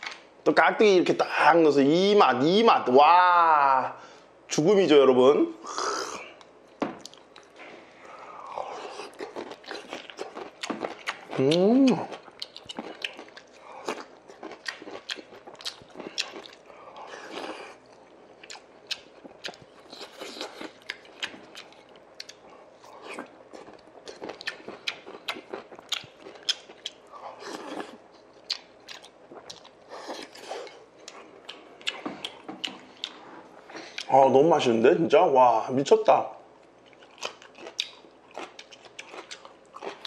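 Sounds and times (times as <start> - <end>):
wet chewing and crunching: 8.4 - 34.2, 36.7 - 40.0.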